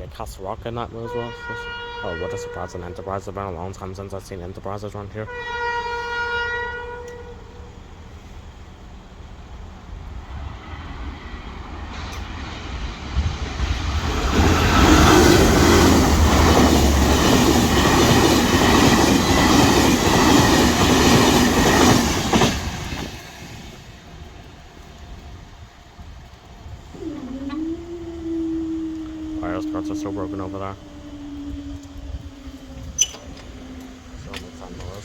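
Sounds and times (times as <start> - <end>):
train wheels clattering on rails: 11.0 - 25.3.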